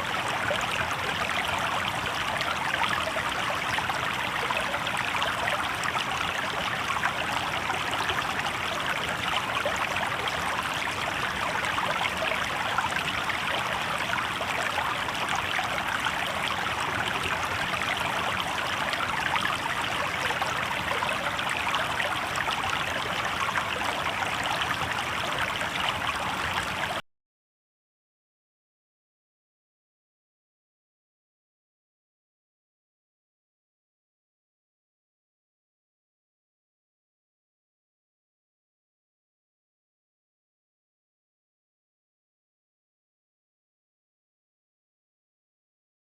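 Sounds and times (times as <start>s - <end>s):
river water babbling over stones: 0.0s - 27.0s.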